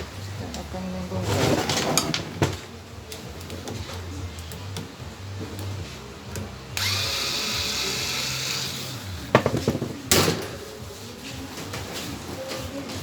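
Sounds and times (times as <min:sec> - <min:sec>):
power drill running: 0:06.8 - 0:09.3.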